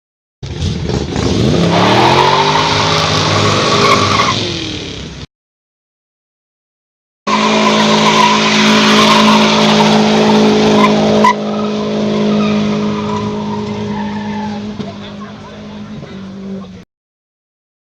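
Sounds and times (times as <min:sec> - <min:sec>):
engine at high revs: 0:00.4 - 0:05.3, 0:07.3 - 0:16.8
tyres squealing: 0:07.3 - 0:16.4.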